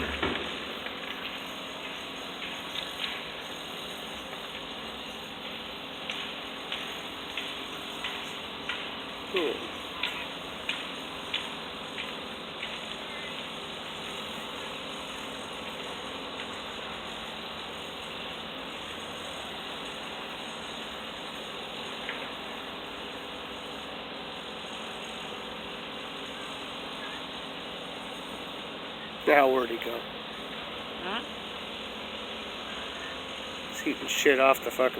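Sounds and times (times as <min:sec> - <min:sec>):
faint hum: 0:11.4 - 0:34.9.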